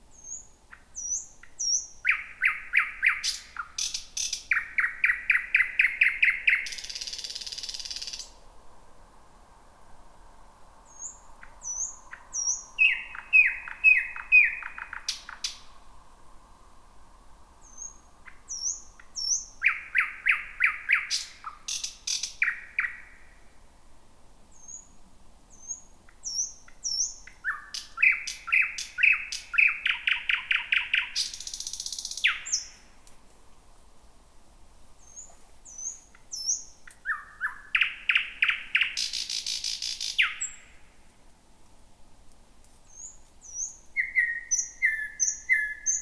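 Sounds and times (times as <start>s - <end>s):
nightingale singing: 0.1s - 8.4s, 10.8s - 15.9s, 17.6s - 23.4s, 24.5s - 33.0s, 35.0s - 40.9s, 42.9s - 46.0s.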